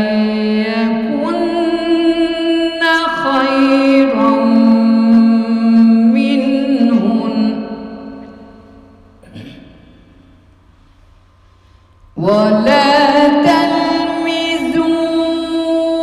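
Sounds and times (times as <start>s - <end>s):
woman reciting in melodic chant: 0.0s - 8.7s, 12.2s - 16.0s.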